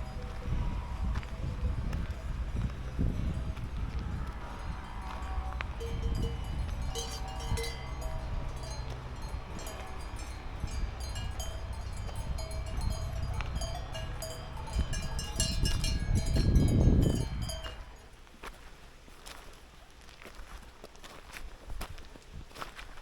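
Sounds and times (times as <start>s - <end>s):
low steady rumble: 0.0s - 18.1s
cowbells clanking: 2.2s - 18.1s.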